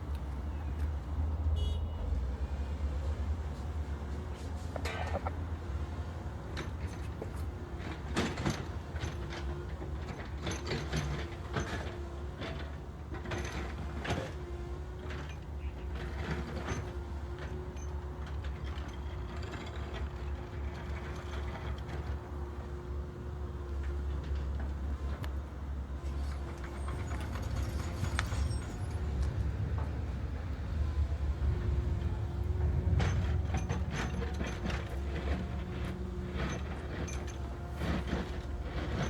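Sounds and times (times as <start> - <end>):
diesel engine running: 0.0 - 39.0
metallic clanks and knocks: 32.0 - 39.0.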